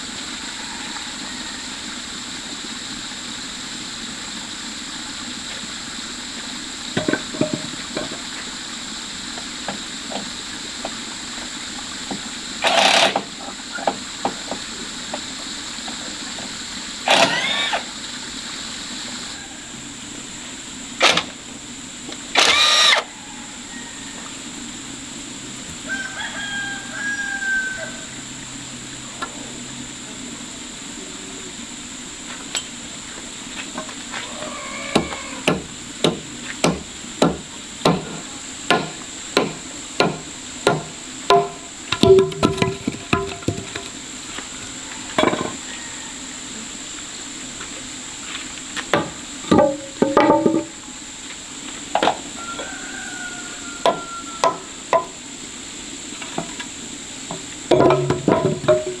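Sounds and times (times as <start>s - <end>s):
steady hiss: 0.0s - 59.0s
hammer striking wood: 35.0s - 43.8s
sharp knocks: 35.0s - 43.9s.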